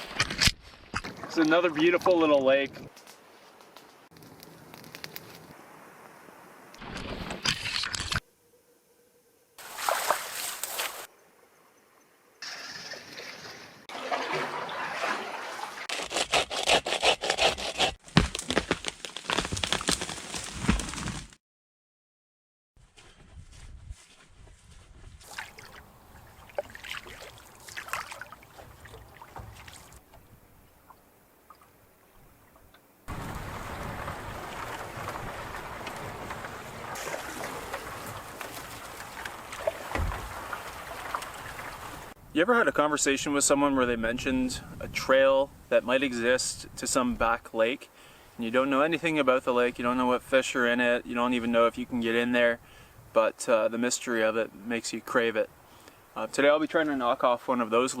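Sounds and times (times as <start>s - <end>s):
water splashing and sloshing: 0.0s - 2.3s, 9.6s - 11.1s, 12.4s - 15.9s, 25.2s - 42.2s
rush of wind and water: 33.1s - 42.2s.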